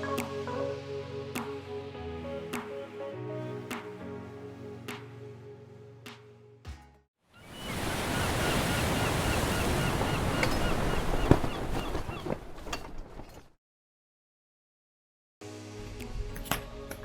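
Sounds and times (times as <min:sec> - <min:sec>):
sea waves washing: 0:07.4 - 0:12.2.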